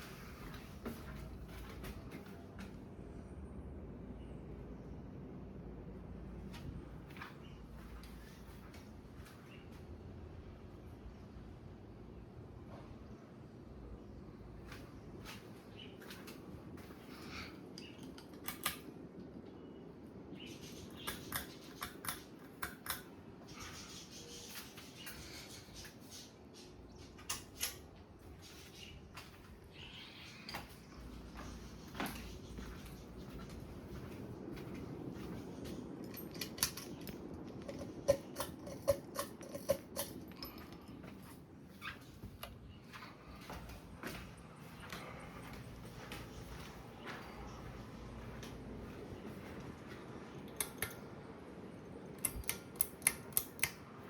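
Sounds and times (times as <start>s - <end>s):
ceiling fan humming: 0.0s - 54.0s
sharp clicks: 50.4s - 51.1s, 52.2s - 53.9s.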